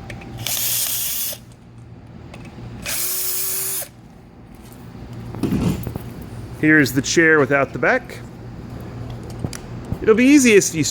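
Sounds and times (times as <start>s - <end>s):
power drill running: 0.4s - 1.4s, 2.8s - 4.0s.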